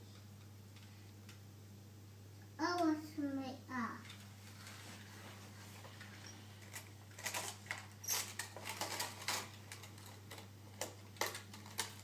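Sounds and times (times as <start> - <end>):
toy vehicles clicking and knocking: 6.6 - 12.0.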